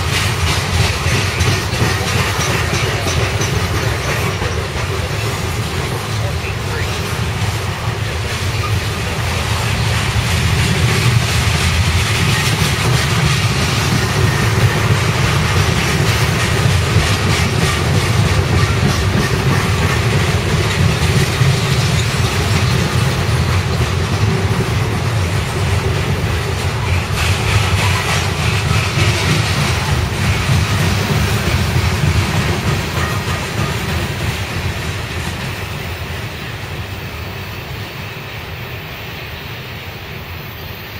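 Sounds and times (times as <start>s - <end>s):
freight train wheels rumbling: 0.0s - 40.9s.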